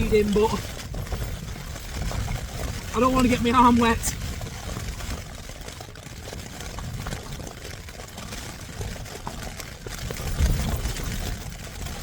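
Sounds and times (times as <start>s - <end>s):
rain striking tent fabric: 0.0s - 12.0s
wind buffeting a tent: 0.0s - 12.0s.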